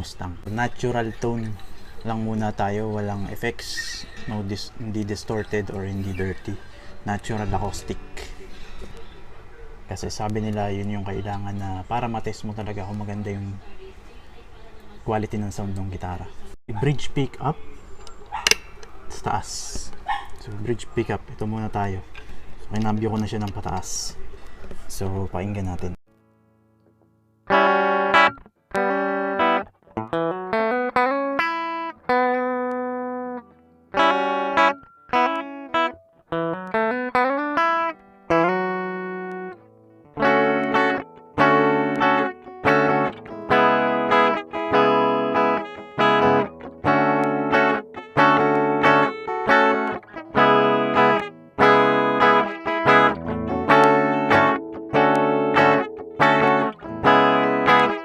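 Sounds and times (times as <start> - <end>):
guitar strumming chords: 0.0 - 9.0, 26.3 - 58.0
clean electric guitar: 0.0 - 14.2, 17.5 - 58.0.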